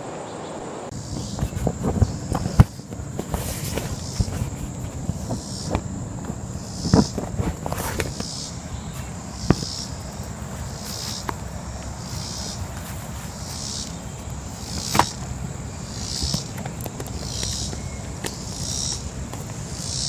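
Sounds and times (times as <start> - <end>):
manual air pump strokes: 6.8 - 9.9.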